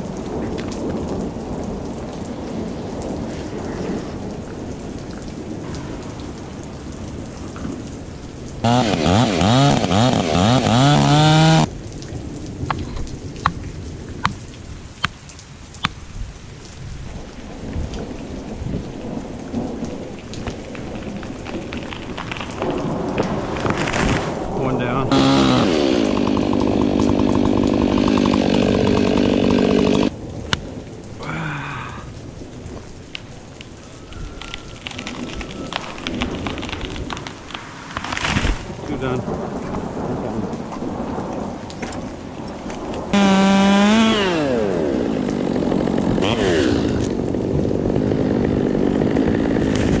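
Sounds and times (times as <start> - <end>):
chainsaw engine running: 8.6 - 11.7, 25.1 - 30.1, 43.2 - 50.0.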